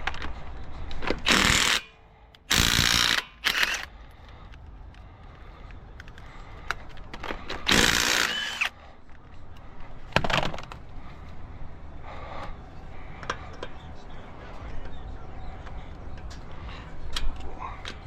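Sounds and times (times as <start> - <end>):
impact wrench bursts: 1.1 - 3.9, 7.6 - 8.7.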